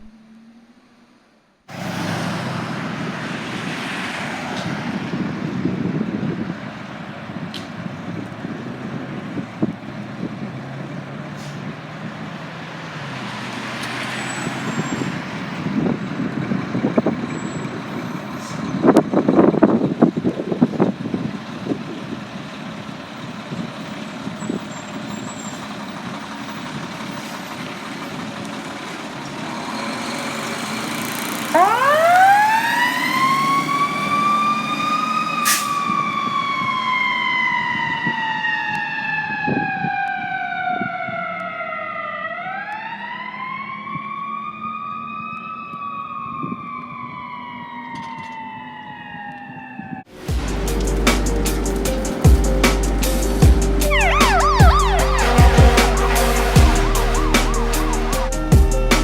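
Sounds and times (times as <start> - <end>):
fire engine rumbling: 1.7 - 59.0
siren winding up and down: 29.8 - 50.0, 53.7 - 59.0.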